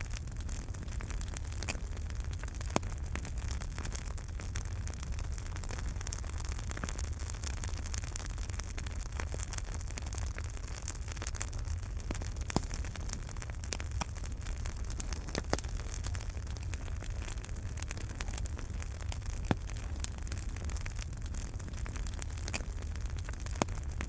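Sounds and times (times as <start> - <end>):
fire crackling and popping: 0.0 - 24.0
low rumble of flames: 0.0 - 24.0.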